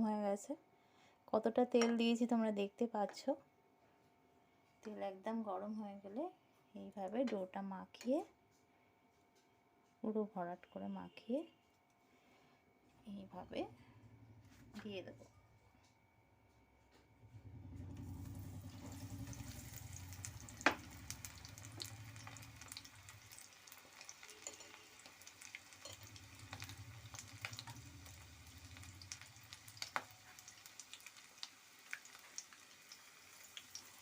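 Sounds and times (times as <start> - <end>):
chicken deep-frying in oil: 17.4 - 34.0.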